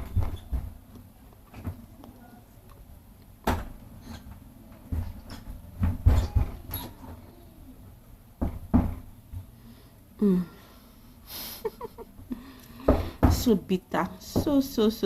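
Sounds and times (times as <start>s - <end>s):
person humming: 10.2s - 10.6s.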